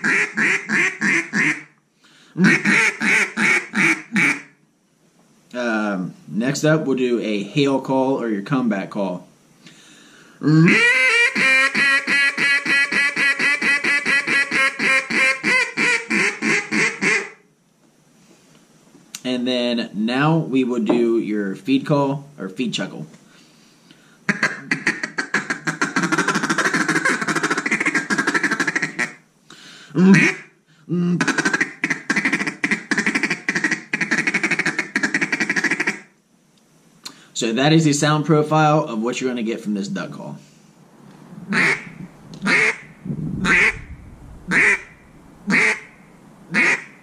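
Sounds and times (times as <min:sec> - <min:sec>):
duck call raspy quacks: 0:00.0 - 0:01.8, 0:02.4 - 0:04.6, 0:10.4 - 0:17.4, 0:24.3 - 0:29.2, 0:30.0 - 0:30.6, 0:31.2 - 0:36.1, 0:41.5 - 0:43.8, 0:44.5 - 0:44.9, 0:45.5 - 0:47.0.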